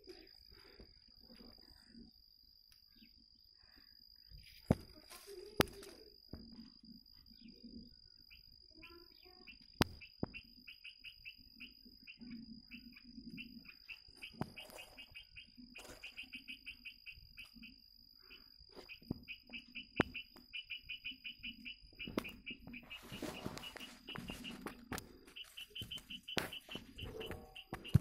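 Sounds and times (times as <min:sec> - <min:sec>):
steady high whine: 0:00.0 - 0:28.0
bird chirping: 0:01.7 - 0:04.7, 0:05.3 - 0:28.0
sharp clicks: 0:18.8 - 0:28.0.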